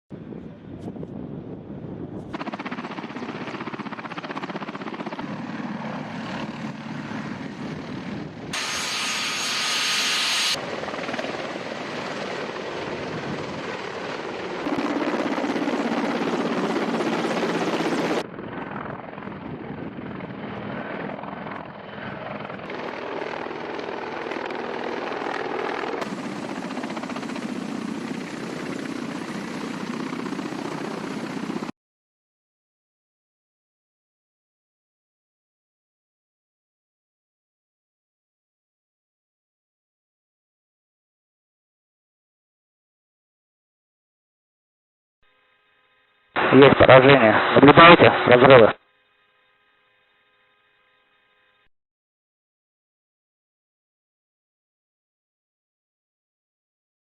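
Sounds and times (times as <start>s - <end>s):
helicopter turbines and rotors: 0.2s - 31.7s.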